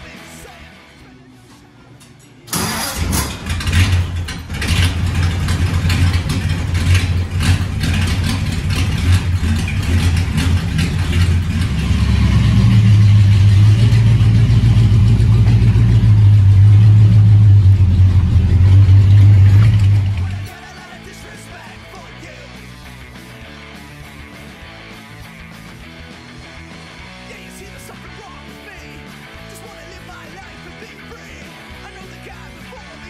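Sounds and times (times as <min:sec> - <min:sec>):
car engine starting and revving: 0:02.5 - 0:20.6.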